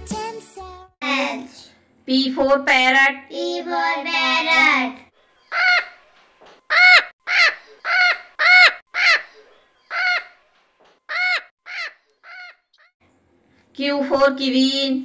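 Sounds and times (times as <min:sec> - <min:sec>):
macaw squawking: 0:05.4 - 0:06.1, 0:06.7 - 0:10.5, 0:11.1 - 0:12.9.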